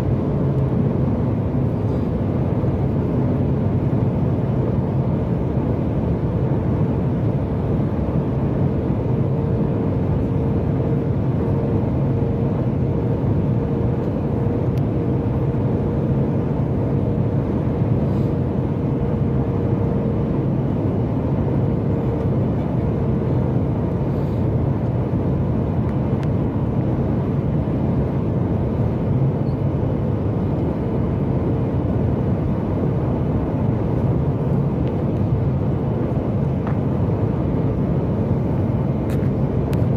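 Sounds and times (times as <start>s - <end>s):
airliner engine and airflow rush: 0.0s - 39.9s.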